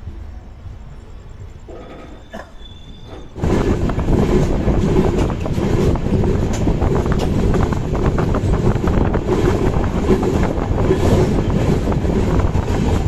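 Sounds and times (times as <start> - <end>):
train wheels rumbling on rails: 0.0 - 13.0
rail clacks: 1.5 - 13.0
wind rushing past door: 3.0 - 13.0.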